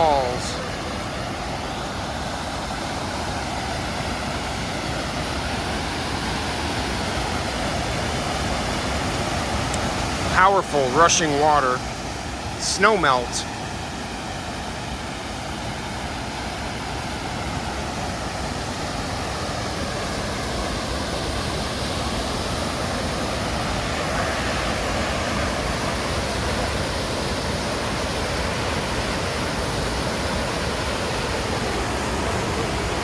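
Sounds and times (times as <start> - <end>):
waterfall roaring: 0.0 - 33.0.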